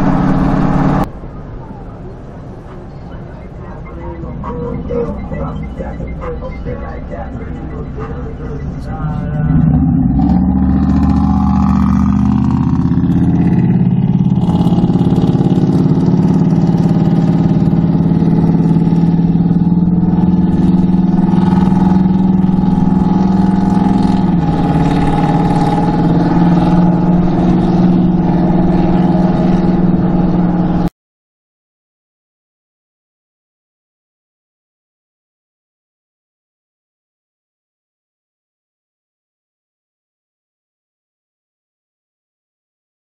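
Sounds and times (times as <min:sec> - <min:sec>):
car engine accelerating: 0:00.0 - 0:30.9
road noise: 0:00.0 - 0:30.9.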